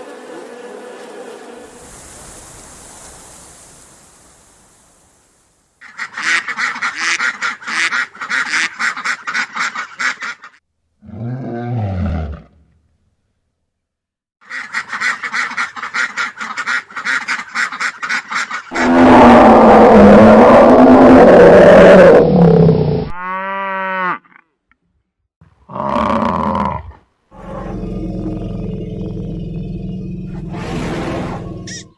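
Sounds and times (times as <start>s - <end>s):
ducks quacking: 5.8s - 10.6s, 14.4s - 18.8s
loud roar: 18.7s - 23.2s, 27.4s - 31.8s.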